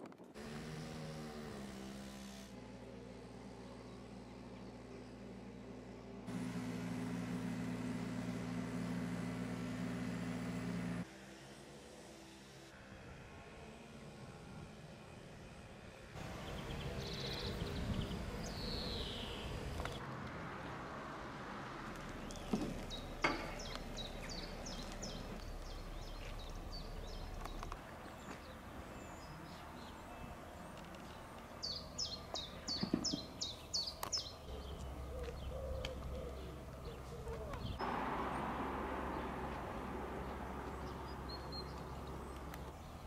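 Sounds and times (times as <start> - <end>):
birds chirping: 16.2 - 20.0, 21.9 - 43.0.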